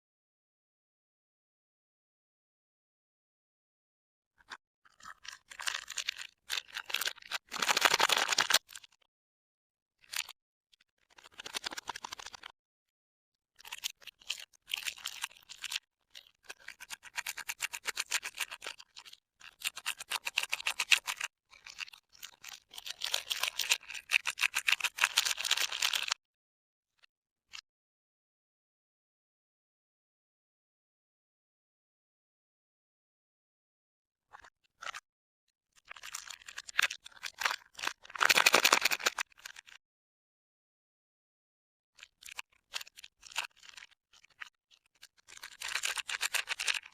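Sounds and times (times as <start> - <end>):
soap wrappers crinkling: 5.0 - 8.8, 35.9 - 39.7, 45.2 - 46.9.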